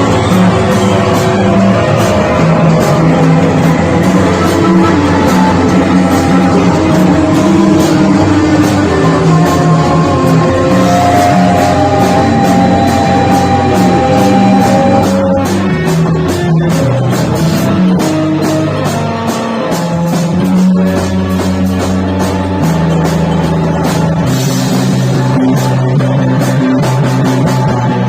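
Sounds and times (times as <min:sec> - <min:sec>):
long held low notes: 0:00.0 - 0:19.2
drum kit beat: 0:00.0 - 0:28.0
guitar playing: 0:00.0 - 0:28.0.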